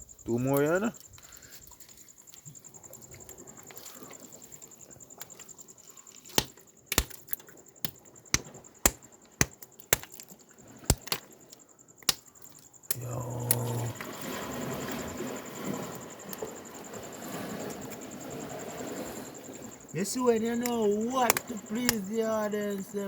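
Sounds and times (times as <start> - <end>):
charcoal fire cracks and pops: 6.2 - 13.9, 20.3 - 22.9.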